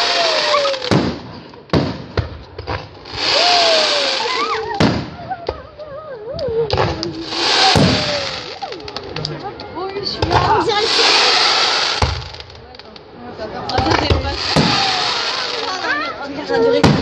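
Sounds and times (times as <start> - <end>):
hissing crackle of sparks: 0.0 - 1.9, 2.8 - 5.0, 6.9 - 9.3, 10.6 - 13.0, 14.3 - 16.1
fireworks shells bursting: 0.0 - 5.1, 6.7 - 9.2, 10.2 - 13.0, 13.8 - 16.1.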